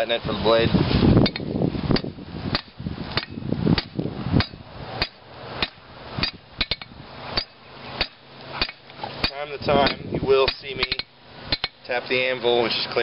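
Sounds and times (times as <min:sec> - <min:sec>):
hammer striking metal on anvil: 0:02.5 - 0:11.8.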